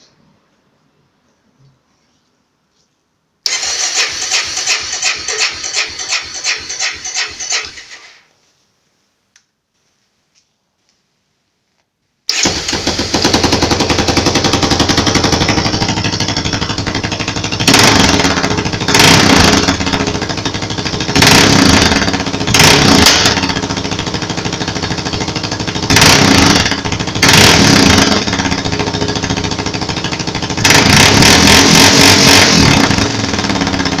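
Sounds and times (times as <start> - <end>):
car engine idling and revving: 12.9 - 34.0.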